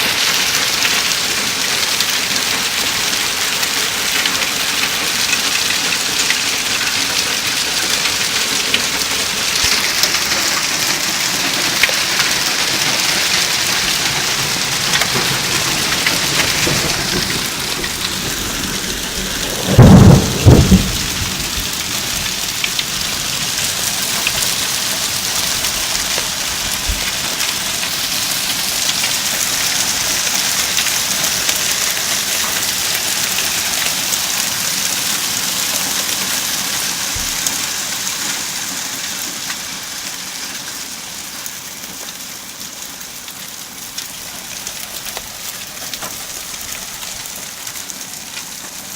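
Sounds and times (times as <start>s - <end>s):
hail and rain pelting: 0.0s - 48.9s
thunder clap: 13.7s - 24.7s.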